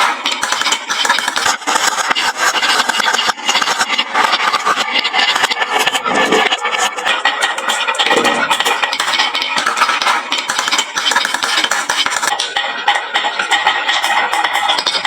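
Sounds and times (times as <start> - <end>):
marbles clattering down wooden run: 8.0 - 12.6.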